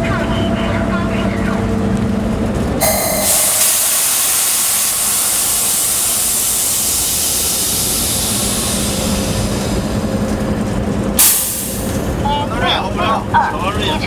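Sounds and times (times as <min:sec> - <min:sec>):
compressed air hissing: 0:02.8 - 0:10.6, 0:11.2 - 0:12.2.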